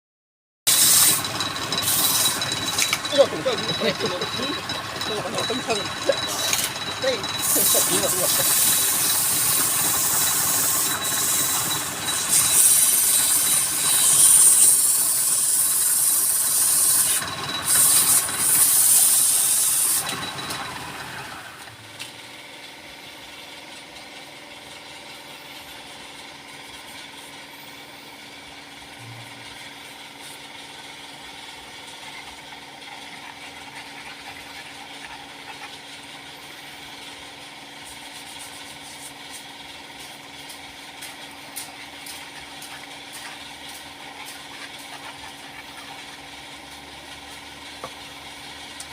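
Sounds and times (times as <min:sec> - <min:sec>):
lathe tool scraping wood: 0:00.7 - 0:21.4
lathe humming: 0:00.7 - 0:21.8.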